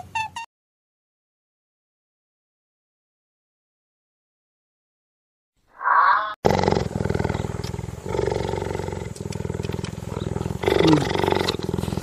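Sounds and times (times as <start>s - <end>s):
cheetah rumbling: 5.8s - 12.0s.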